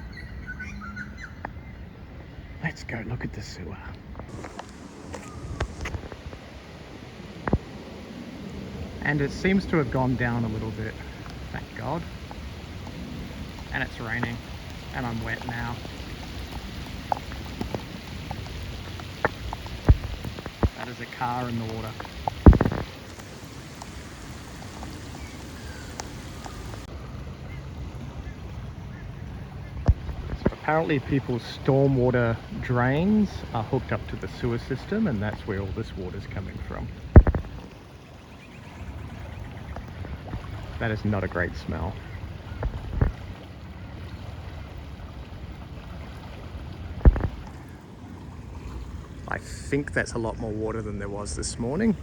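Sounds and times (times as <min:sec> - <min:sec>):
floodwater rushing: 0:00.0 - 0:52.0
wind buffeting microphone: 0:00.0 - 0:52.0
rain falling: 0:04.2 - 0:28.6, 0:29.2 - 0:43.5
drops ticking close by: 0:09.4 - 0:26.9
sharp knocks: 0:22.3 - 0:22.9, 0:37.2 - 0:37.5.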